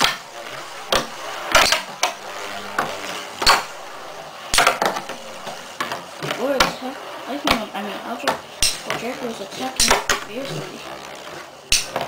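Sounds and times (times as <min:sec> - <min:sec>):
scraping hiss of spinning tops: 0:00.0 - 0:12.0
spinning tops clashing: 0:08.6 - 0:09.0, 0:11.7 - 0:12.0.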